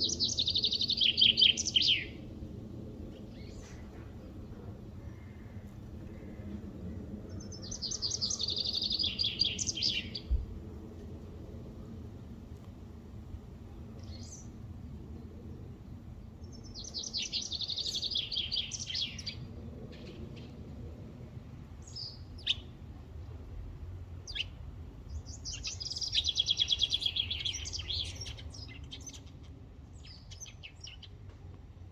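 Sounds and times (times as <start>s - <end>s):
songbird trilling: 0.0s - 2.2s, 7.6s - 10.3s.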